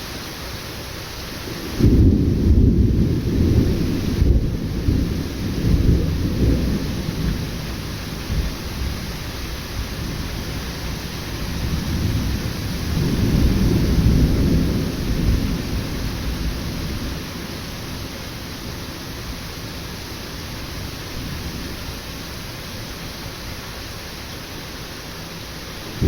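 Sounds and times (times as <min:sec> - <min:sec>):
steady rain: 0:00.0 - 0:26.0
thunder rumbling: 0:01.6 - 0:18.1.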